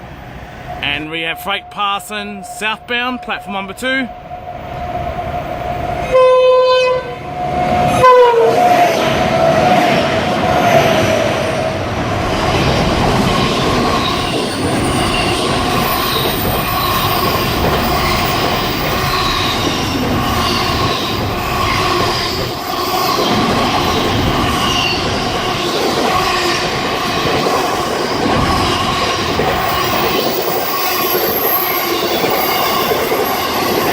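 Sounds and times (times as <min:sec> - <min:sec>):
train horn blasts: 0:06.0 - 0:07.3, 0:08.0 - 0:08.7
freight wagons rumbling and clattering: 0:12.4 - 0:33.9
wheel squeal: 0:14.0 - 0:33.9.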